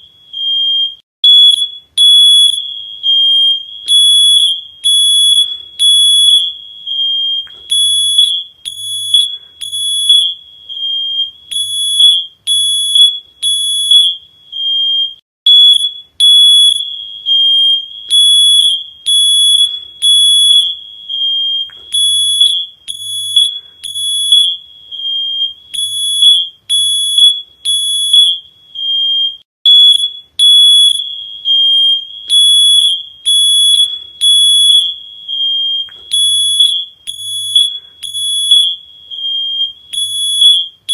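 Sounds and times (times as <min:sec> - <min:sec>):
smoke alarm beeping: 0:00.0 - 0:40.9.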